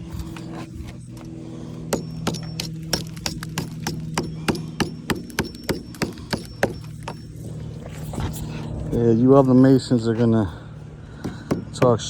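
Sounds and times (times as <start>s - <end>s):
steady low hum: 0.0s - 12.0s
hammer striking brick: 1.9s - 7.2s, 11.2s - 12.0s.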